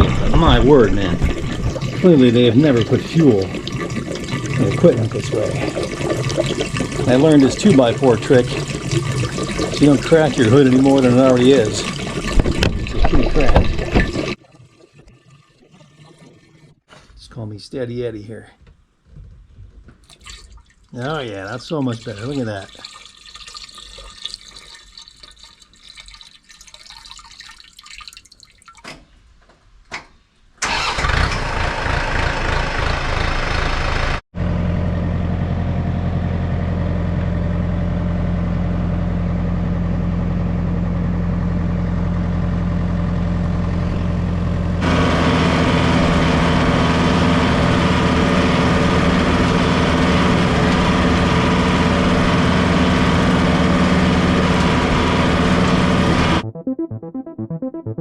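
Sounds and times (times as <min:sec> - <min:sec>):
tractor diesel engine running: 0:00.0 - 0:03.6, 0:04.4 - 0:14.0, 0:30.6 - 0:56.4.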